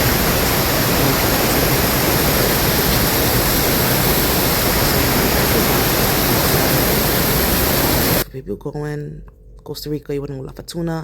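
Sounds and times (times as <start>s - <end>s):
roar of falling water: 0.0s - 8.2s.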